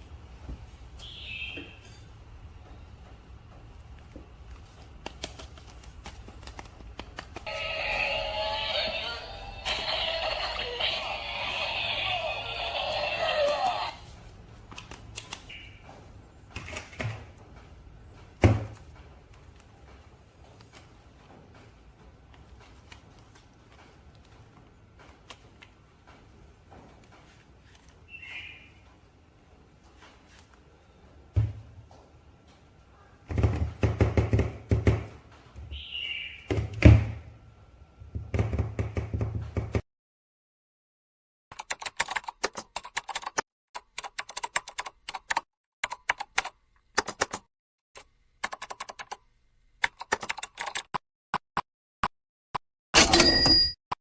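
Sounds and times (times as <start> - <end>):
knocks of hard objects: 33.3 - 35.2, 38.0 - 39.8.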